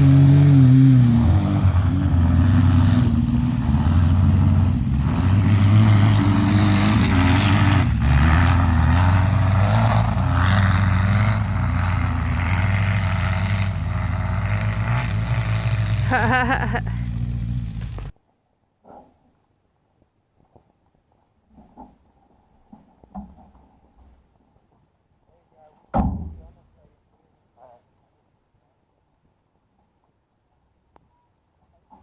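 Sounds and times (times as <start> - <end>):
car engine running under load: 0.0 - 18.1.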